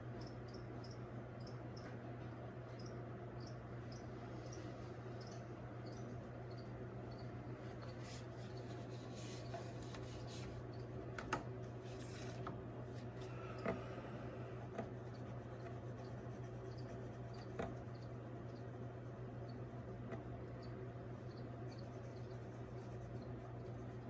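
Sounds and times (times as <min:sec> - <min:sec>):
steady low hum: 0:00.0 - 0:24.0
crickets chirping: 0:00.1 - 0:01.9, 0:02.7 - 0:08.7, 0:20.5 - 0:23.7.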